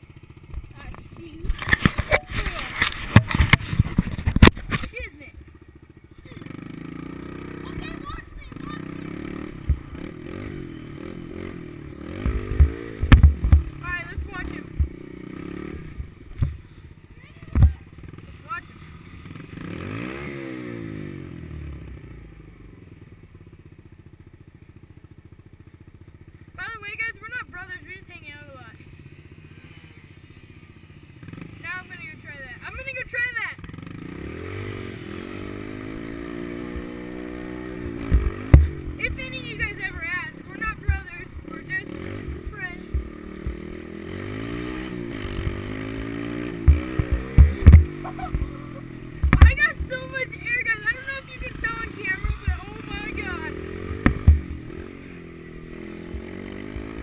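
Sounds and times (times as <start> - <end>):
small motorcycle engine passing by: 0.0 - 57.0
loud low thumps: 46.5 - 50.0, 53.9 - 54.8.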